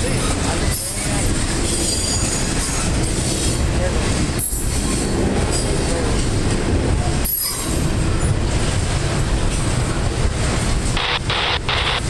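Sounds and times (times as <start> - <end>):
train wheels rumbling on rail: 0.0 - 12.0
wheel squeal: 1.7 - 2.8.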